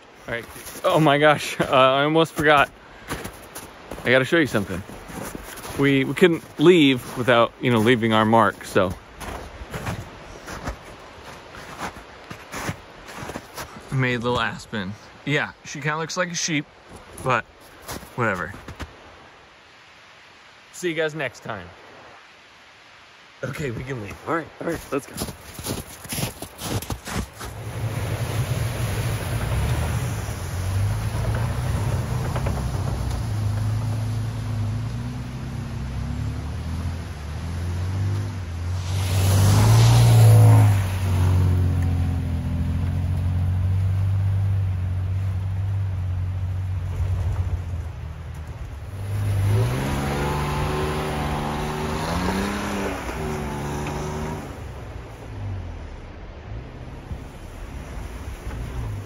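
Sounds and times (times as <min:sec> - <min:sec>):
road and tyre noise: 0:00.0 - 0:21.0, 0:21.6 - 0:59.0
truck engine hum: 0:27.5 - 0:59.0.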